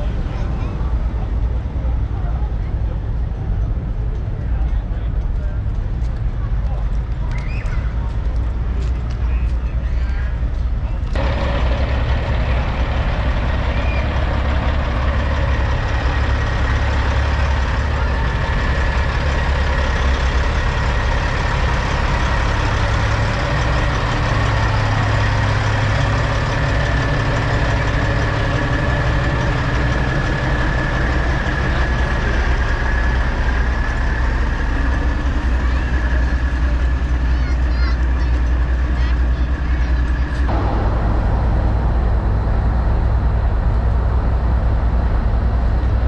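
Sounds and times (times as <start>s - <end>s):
diesel truck engines idling: 0.0s - 46.0s
faint high whine: 40.5s - 45.8s.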